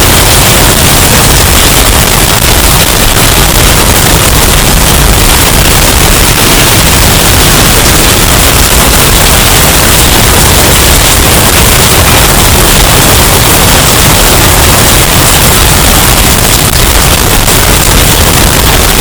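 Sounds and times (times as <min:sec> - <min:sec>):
distorted hurricane wind: 0:00.0 - 0:19.0.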